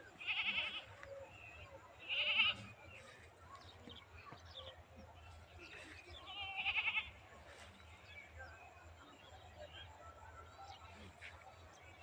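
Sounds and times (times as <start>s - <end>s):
goat bleating: 0.2s - 0.9s, 2.0s - 2.7s, 6.3s - 7.1s.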